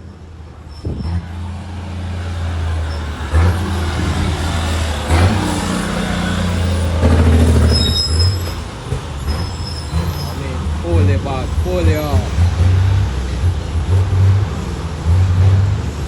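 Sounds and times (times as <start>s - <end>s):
diesel truck engine drone: 0.0s - 16.0s
brief high squeal: 0.7s - 1.3s, 6.7s - 10.5s.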